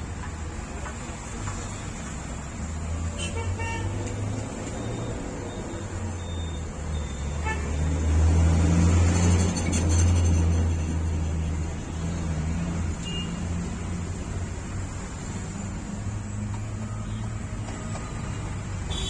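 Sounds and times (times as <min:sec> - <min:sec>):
vehicle horn toots: 0:07.4 - 0:07.8.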